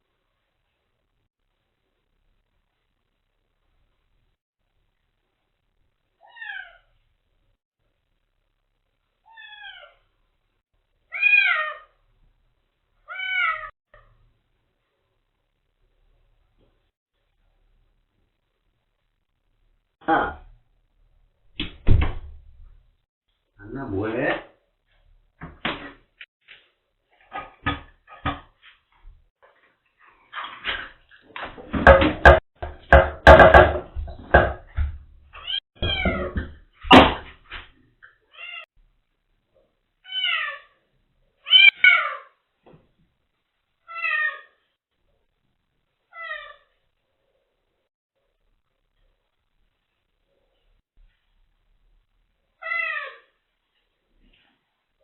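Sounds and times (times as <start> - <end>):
bumping and clattering with clicks: 30.6 - 35.2.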